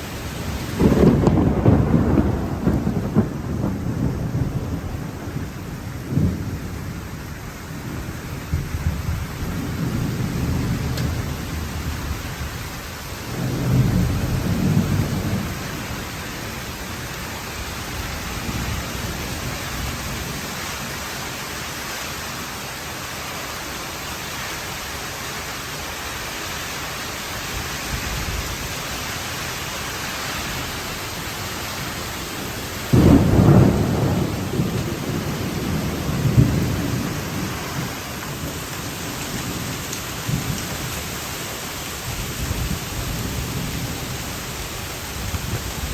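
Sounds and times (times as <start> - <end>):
thunder rumbling: 0.0 - 21.0, 30.5 - 41.2, 42.0 - 45.9
heavy rain hissing: 0.0 - 45.9
loud thunderclap: 0.7 - 7.0, 13.3 - 16.1, 32.8 - 38.5.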